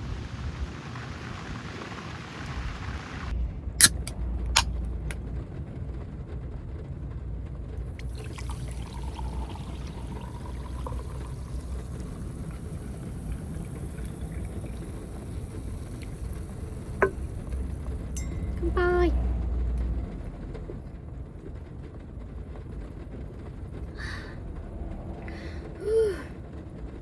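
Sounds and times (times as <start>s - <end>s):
drink poured into glass: 8.0s - 17.6s.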